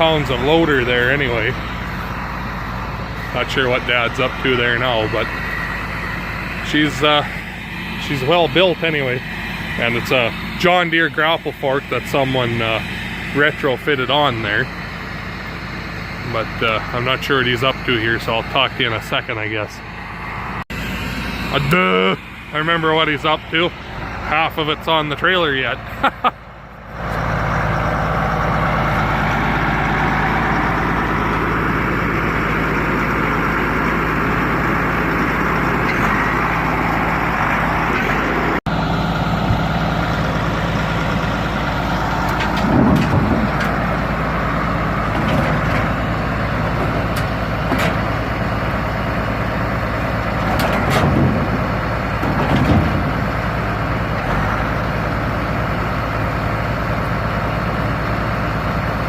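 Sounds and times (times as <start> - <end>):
tractor engine running: 0.0 - 59.0
metal clanks: 42.2 - 44.0, 45.0 - 48.4, 50.3 - 53.4.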